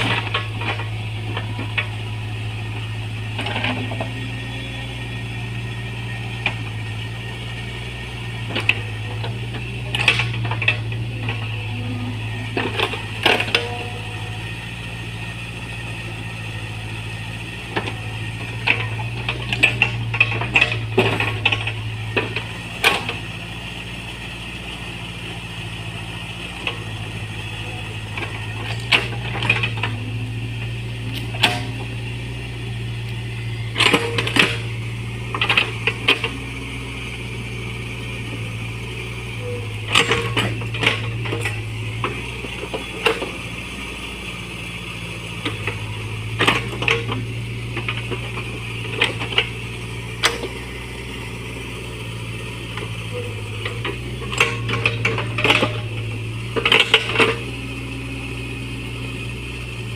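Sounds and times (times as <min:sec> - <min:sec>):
excavator bucket clattering and clanking: 0:00.0 - 0:04.6, 0:08.3 - 0:14.8, 0:17.2 - 0:23.4, 0:25.8 - 0:43.6, 0:45.2 - 0:58.1
diesel engine running: 0:00.0 - 0:59.9.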